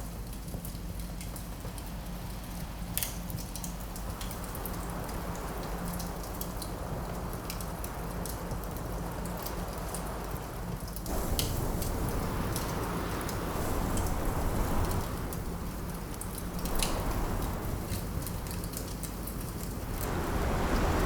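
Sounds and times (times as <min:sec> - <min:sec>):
wood fire crackling: 0:00.4 - 0:21.0
wind rushing: 0:11.1 - 0:18.7, 0:19.7 - 0:21.0.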